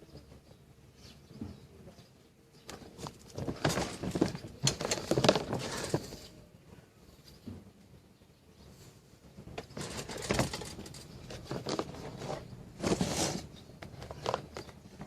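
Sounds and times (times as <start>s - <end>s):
clicks and rattles of handling: 2.6s - 6.3s, 9.4s - 15.0s.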